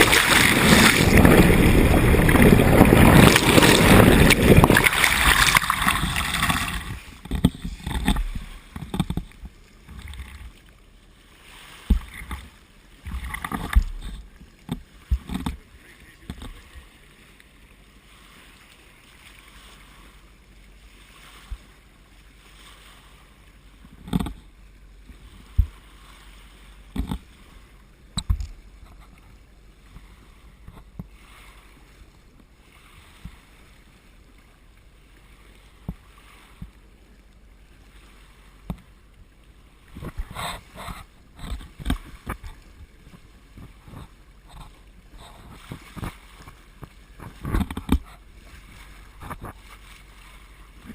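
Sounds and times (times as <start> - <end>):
sharp knocks and thumps: 0.0 - 10.2
water rushing along a hull: 0.0 - 50.9.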